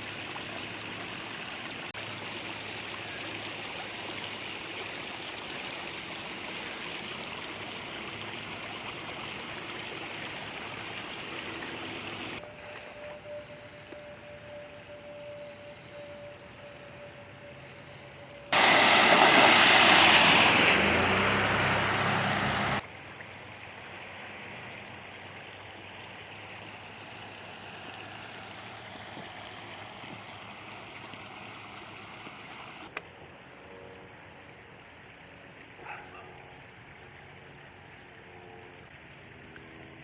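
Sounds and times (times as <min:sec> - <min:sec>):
fainter rush of flowing water: 0:00.0 - 0:40.0
loud rushing noise: 0:18.6 - 0:22.8.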